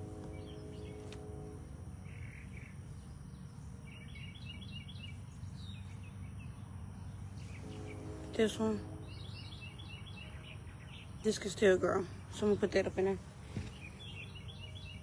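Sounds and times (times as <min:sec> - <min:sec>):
humming tone: 0:00.0 - 0:02.3, 0:07.6 - 0:09.8
bird chirping: 0:00.0 - 0:13.0, 0:13.6 - 0:15.0
low steady rumble: 0:00.0 - 0:15.0.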